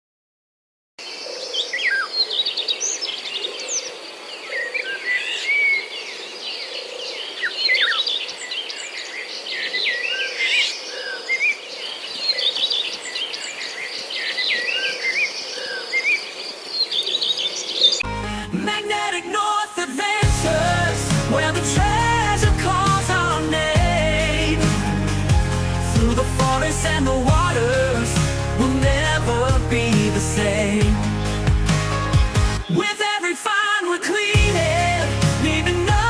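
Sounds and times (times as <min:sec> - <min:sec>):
songbirds singing: 0:01.0 - 0:18.1, 0:20.2 - 0:33.2
music: 0:18.0 - 0:33.4, 0:34.2 - 0:36.0.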